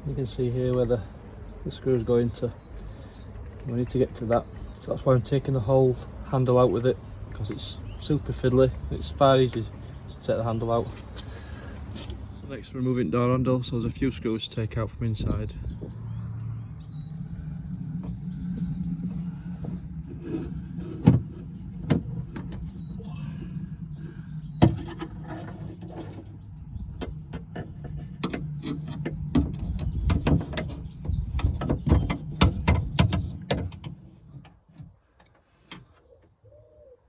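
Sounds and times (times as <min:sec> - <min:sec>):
steady low hum: 0:15.0 - 0:28.5.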